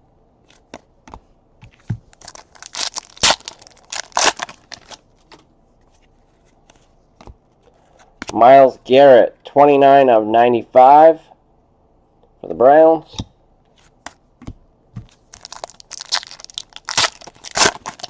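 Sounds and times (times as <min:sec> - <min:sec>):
trading cards rustling: 0:01.8 - 0:08.4, 0:15.2 - 0:18.0.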